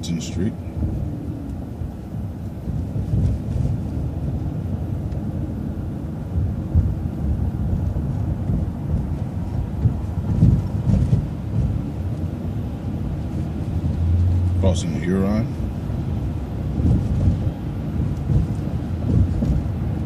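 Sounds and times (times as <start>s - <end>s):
vehicle engine and road noise: 0.0s - 20.0s
vehicle bumps and knocks: 6.3s - 14.8s, 15.6s - 20.0s.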